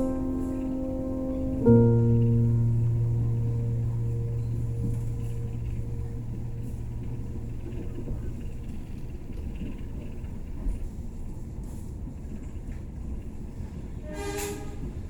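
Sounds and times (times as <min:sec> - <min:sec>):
piano notes: 0:00.0 - 0:10.3
low rumble of train running: 0:00.0 - 0:15.0.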